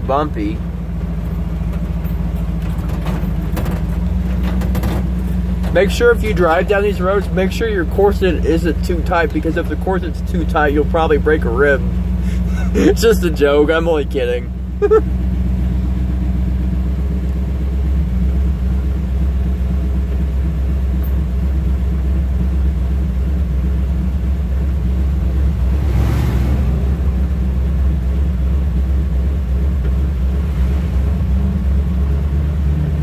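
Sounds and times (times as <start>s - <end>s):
engine and tyres rumbling: 0.0s - 33.0s.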